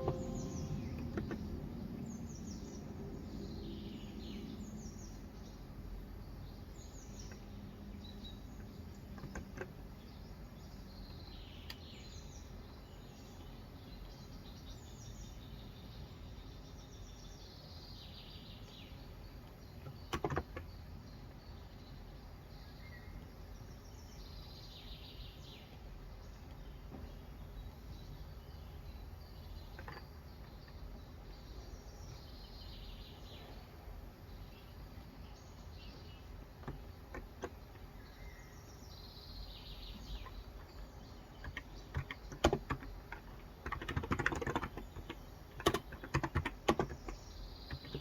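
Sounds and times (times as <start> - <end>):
clicks: 0.0 - 1.4
birds chirping: 0.0 - 5.6, 6.2 - 48.0
low background hum: 0.0 - 48.0.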